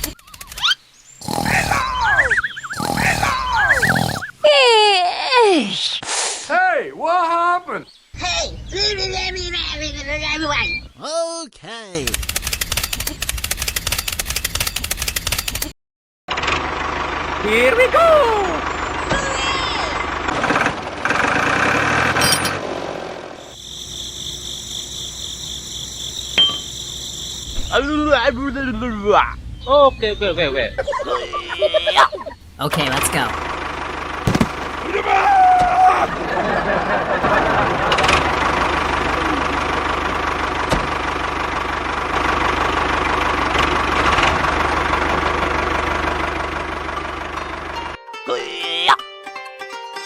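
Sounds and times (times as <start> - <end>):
high pulsing chirping: 0.1 - 4.5, 23.4 - 27.8
small engine clattering: 12.0 - 15.7, 18.8 - 22.8, 36.6 - 48.0.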